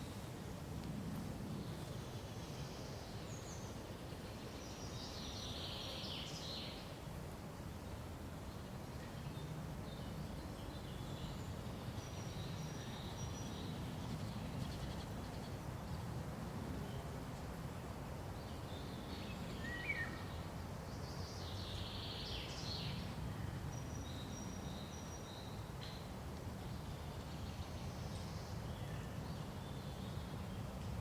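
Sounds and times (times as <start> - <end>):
small songbirds chirping: 1.6 - 7.0, 8.4 - 16.1, 17.9 - 31.0.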